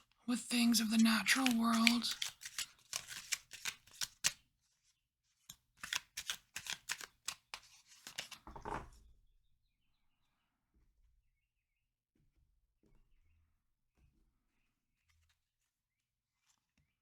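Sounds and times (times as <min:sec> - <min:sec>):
cards being shuffled by hand: 0:01.0 - 0:04.4, 0:05.8 - 0:08.6.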